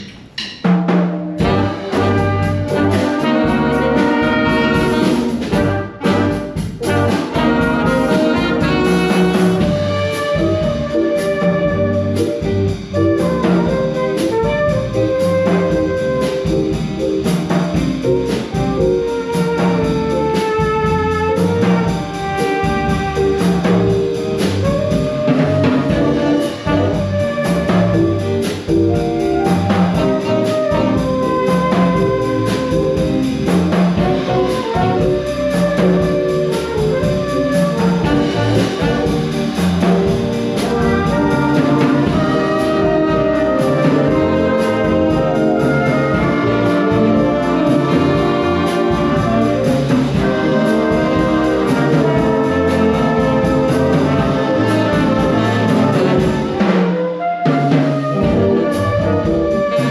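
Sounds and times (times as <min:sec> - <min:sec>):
instrumental ensemble playing: 0:00.0 - 0:59.9.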